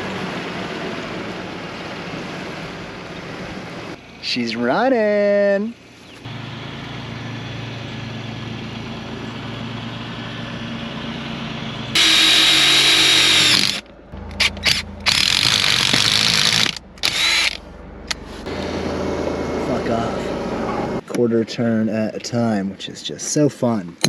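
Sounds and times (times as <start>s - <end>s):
power tool high whine: 11.9s - 13.8s, 14.4s - 17.6s.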